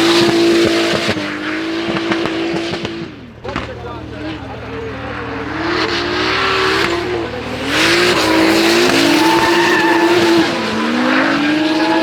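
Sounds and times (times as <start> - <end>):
car engines revving high: 0.0 - 12.0
tyres skidding and squealing: 0.0 - 12.0.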